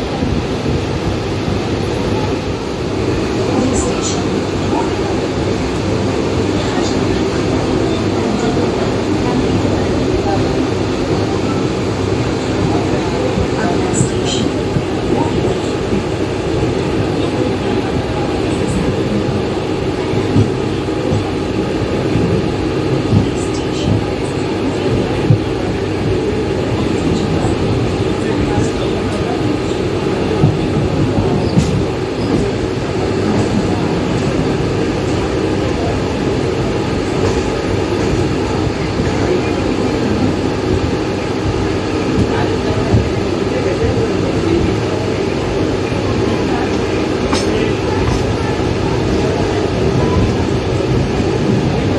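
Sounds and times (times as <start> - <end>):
train wheels rumbling on rails: 0.0 - 51.9.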